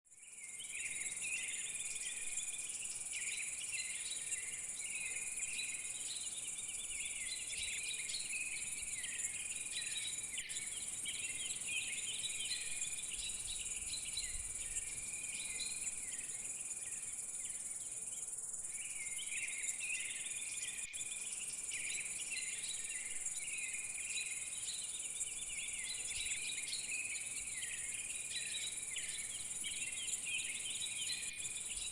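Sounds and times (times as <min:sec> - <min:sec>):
warbling insect chirps: 0:18.4 - 0:31.9.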